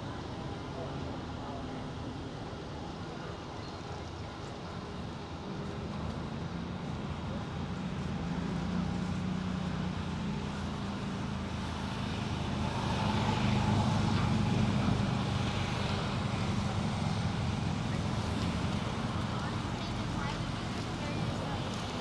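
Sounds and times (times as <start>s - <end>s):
low engine hum: 6.9s - 22.0s.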